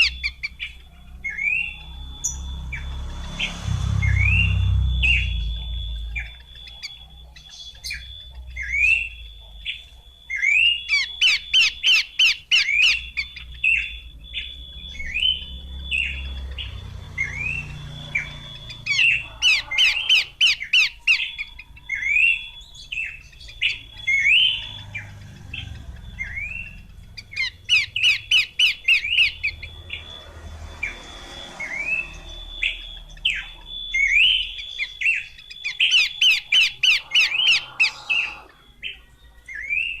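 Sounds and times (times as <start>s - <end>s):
bird sweeping call notes: 0.0s - 39.0s
low rumble: 0.8s - 6.4s
thin high tone: 1.0s - 7.1s.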